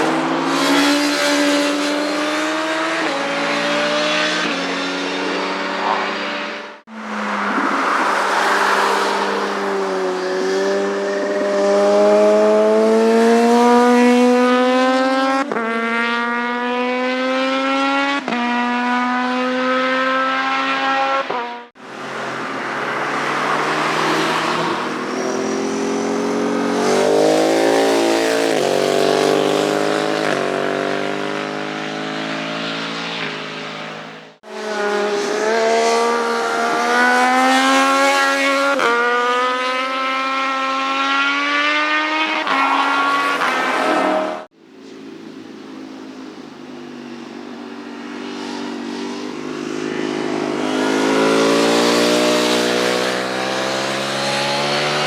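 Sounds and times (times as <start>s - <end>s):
motorcycle engines accelerating: 0.0s - 55.0s.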